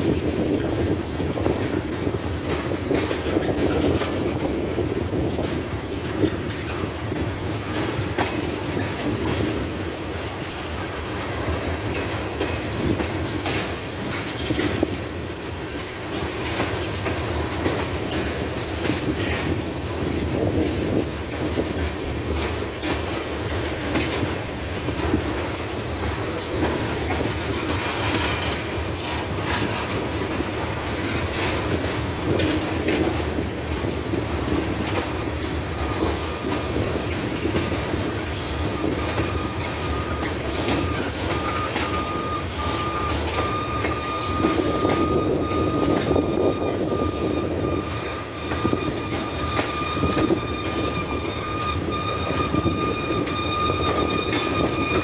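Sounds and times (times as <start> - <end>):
train wheels rumbling on rails: 0.0 - 55.0
wheels clacking over rail joints: 0.0 - 55.0
high wheel squeal: 35.8 - 55.0.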